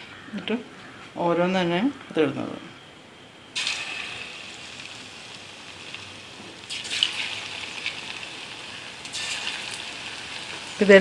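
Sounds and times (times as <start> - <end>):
batter sizzling in hot oil: 3.5 - 11.0.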